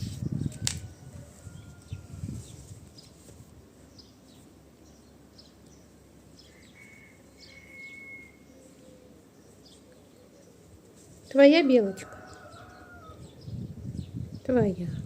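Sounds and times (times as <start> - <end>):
small birds chirping: 0.2 - 15.0
thin steady whistle: 6.9 - 8.4.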